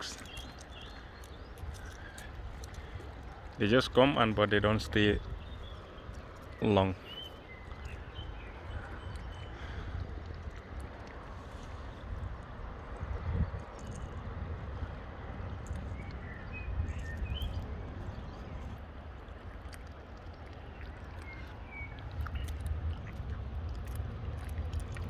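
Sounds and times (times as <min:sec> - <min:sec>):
wind buffeting microphone: 0:00.0 - 0:19.7
bird chirps: 0:04.8 - 0:09.6.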